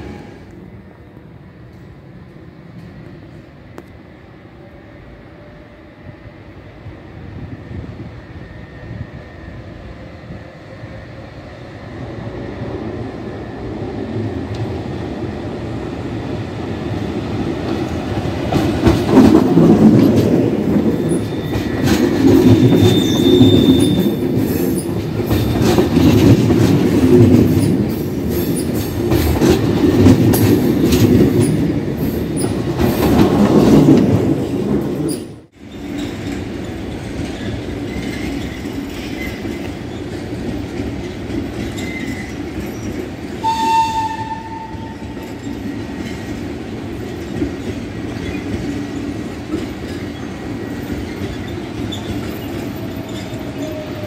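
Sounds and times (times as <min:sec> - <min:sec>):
distant train rumble: 0:00.0 - 0:54.0
train wheels clattering over rails: 0:16.6 - 0:43.5, 0:44.1 - 0:54.0.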